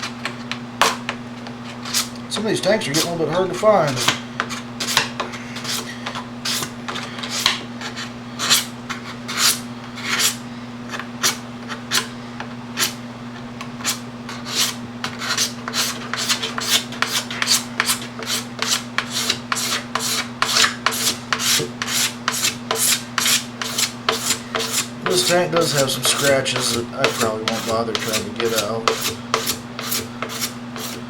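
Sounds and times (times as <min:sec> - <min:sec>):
knife scraping plastic: 0:13.8 - 0:31.0.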